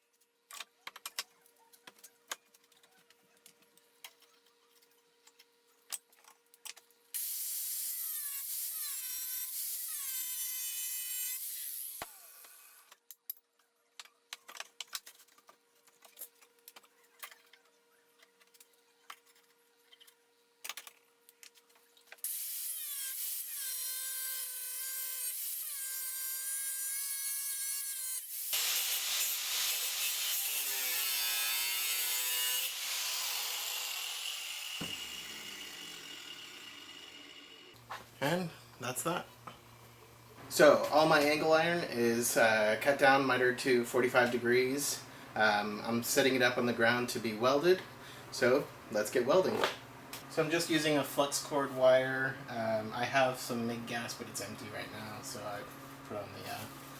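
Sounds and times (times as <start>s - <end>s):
power tool cutting steel: 7.2s - 12.9s, 22.2s - 37.8s.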